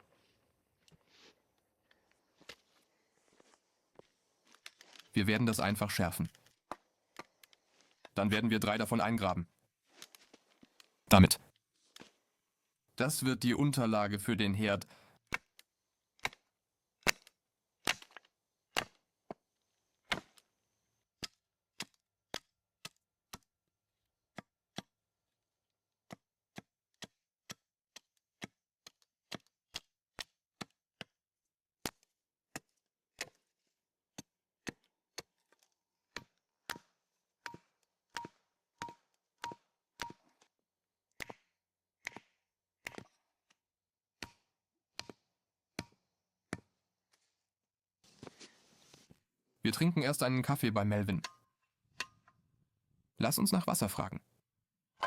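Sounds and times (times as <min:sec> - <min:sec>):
wooden stakes being struck: 0:41.1 - 0:43.2.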